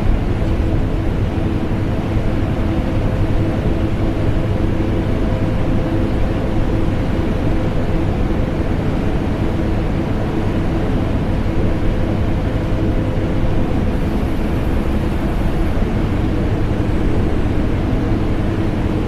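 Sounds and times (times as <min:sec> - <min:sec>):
vacuum cleaner and air conditioner drone: 0:00.0 - 0:19.0.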